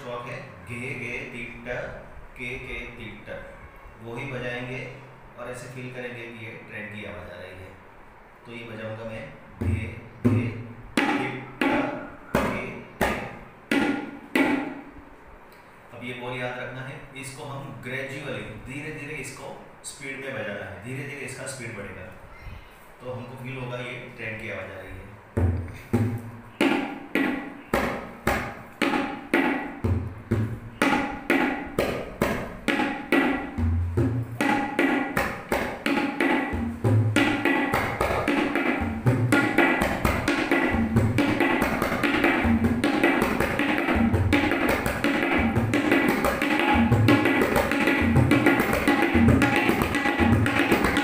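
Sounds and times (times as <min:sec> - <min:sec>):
tabla playing: 0:09.6 - 0:14.9, 0:25.3 - 0:51.0.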